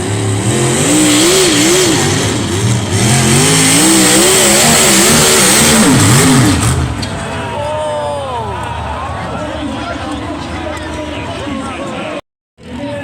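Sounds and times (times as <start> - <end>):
tractor engine revving hard: 0.0 - 7.2.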